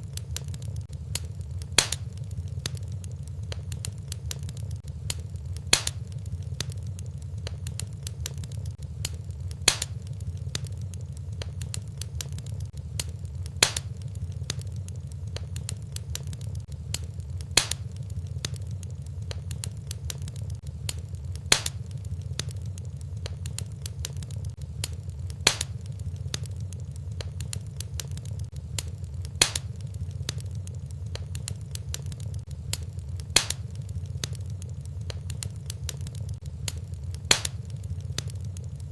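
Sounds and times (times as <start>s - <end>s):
fireplace fire crackling: 0.0s - 38.9s
loud fire pop: 1.7s - 2.1s, 5.7s - 6.1s, 9.6s - 10.1s, 13.6s - 14.0s, 17.6s - 17.9s, 21.5s - 21.9s, 25.4s - 25.8s, 29.4s - 29.8s, 33.4s - 33.7s, 37.3s - 37.7s.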